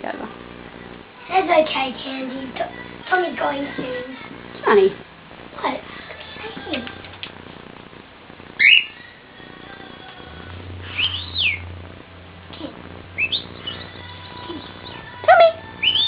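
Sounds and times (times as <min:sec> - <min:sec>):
loud bird call: 0:08.6 - 0:09.0
pet birds chirping: 0:08.6 - 0:09.0, 0:10.9 - 0:11.7, 0:13.2 - 0:16.0.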